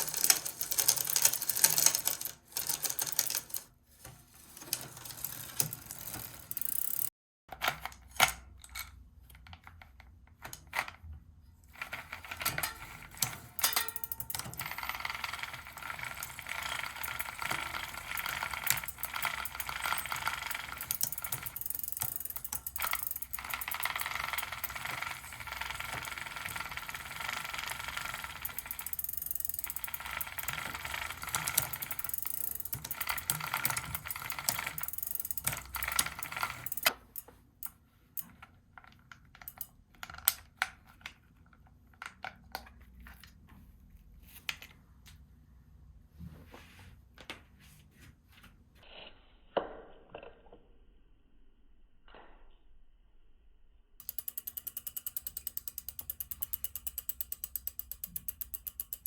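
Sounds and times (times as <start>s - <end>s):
chain clicking rattle: 12.4s - 36.9s.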